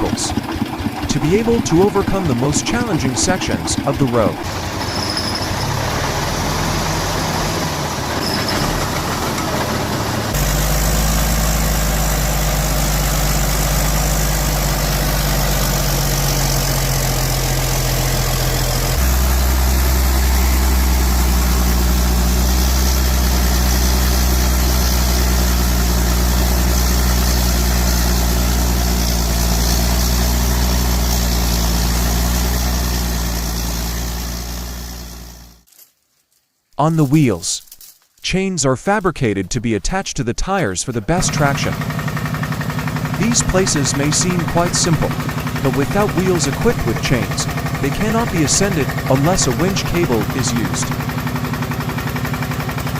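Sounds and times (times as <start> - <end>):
diesel truck engine droning: 0.0 - 35.7, 38.8 - 52.9.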